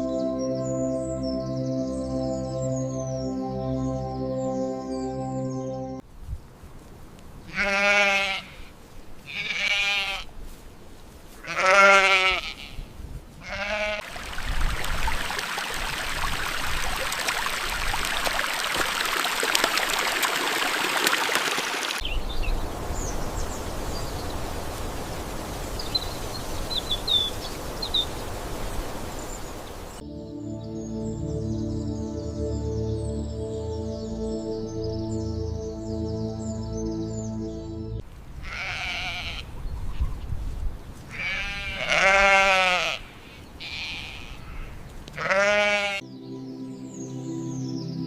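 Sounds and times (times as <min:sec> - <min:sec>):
soft ambient music: 0:00.0 - 0:06.0, 0:30.0 - 0:38.0, 0:45.2 - 0:48.0
livestock bleating: 0:07.5 - 0:10.3, 0:11.4 - 0:12.8, 0:13.4 - 0:14.0, 0:38.4 - 0:39.4, 0:41.1 - 0:46.0.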